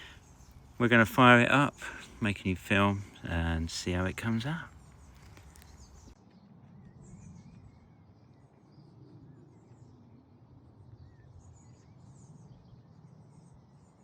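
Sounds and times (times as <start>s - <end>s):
small birds chirping: 0.0s - 6.5s.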